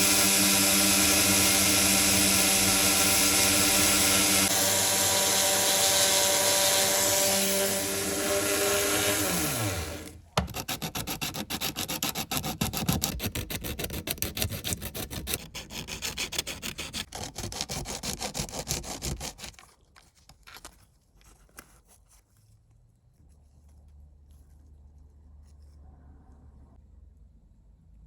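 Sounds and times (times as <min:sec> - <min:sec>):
power tool winding down: 0:00.0 - 0:10.2.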